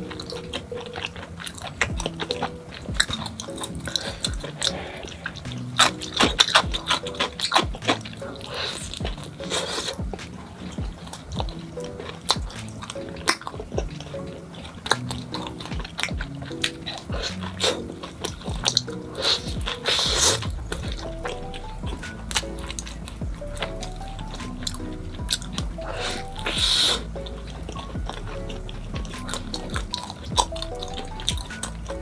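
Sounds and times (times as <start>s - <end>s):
crunchy chewing of pizza crust: 0.0s - 32.0s
soft background music: 0.0s - 32.0s.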